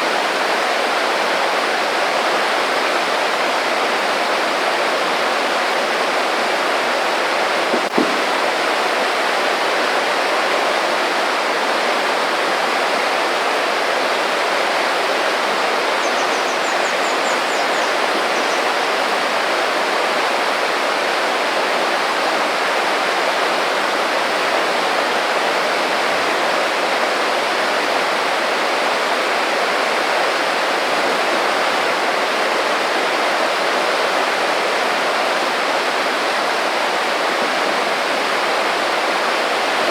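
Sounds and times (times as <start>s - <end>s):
creek babbling: 0.0s - 39.9s
short knock: 7.7s - 8.3s.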